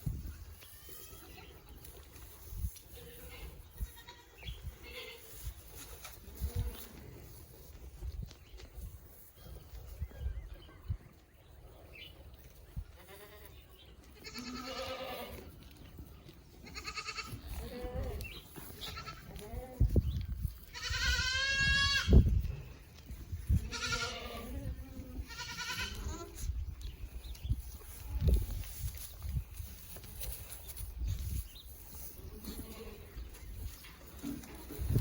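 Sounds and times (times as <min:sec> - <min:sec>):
goats bleating: 0:02.9 - 0:05.4, 0:13.0 - 0:15.5, 0:16.6 - 0:19.9, 0:20.7 - 0:22.2, 0:23.5 - 0:26.4, 0:32.3 - 0:33.2.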